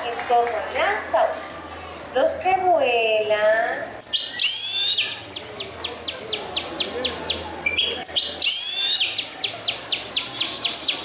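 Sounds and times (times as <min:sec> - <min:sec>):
bird whistling and chirping: 0:04.0 - 0:05.5, 0:07.0 - 0:11.0.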